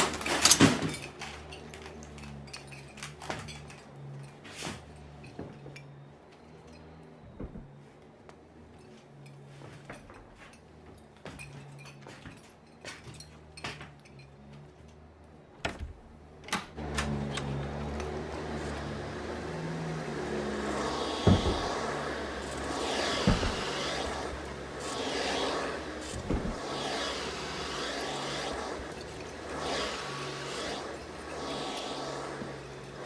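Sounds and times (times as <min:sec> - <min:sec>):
car engine running: 0:16.8 - 0:33.0
hiss: 0:20.3 - 0:33.0.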